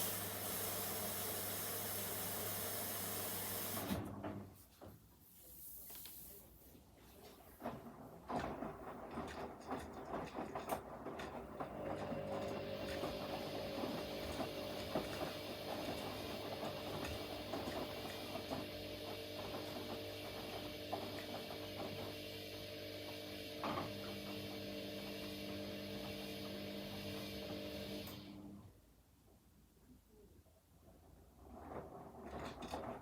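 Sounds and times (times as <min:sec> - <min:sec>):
washing machine motor whine: 0:00.0 - 0:04.2, 0:11.2 - 0:28.6.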